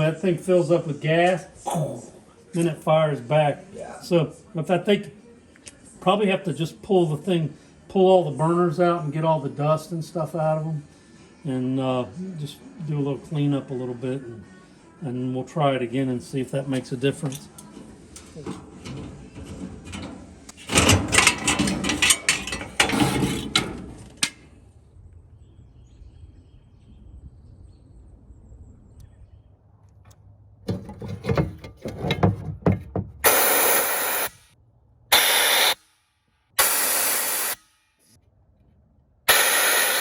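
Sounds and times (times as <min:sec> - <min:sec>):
metal clattering and knocking: 0:17.6 - 0:24.4, 0:30.7 - 0:33.3.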